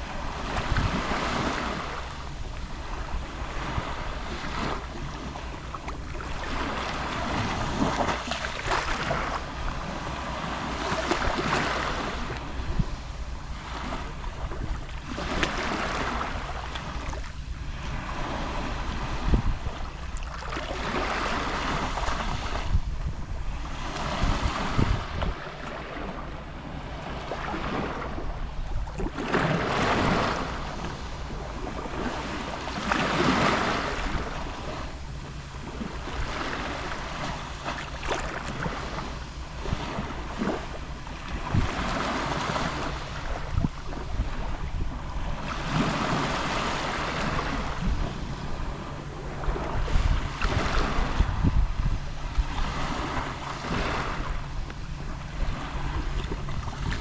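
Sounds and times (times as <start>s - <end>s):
sea waves lapping on shore: 0.0s - 57.0s
steady low rumble: 21.9s - 45.6s.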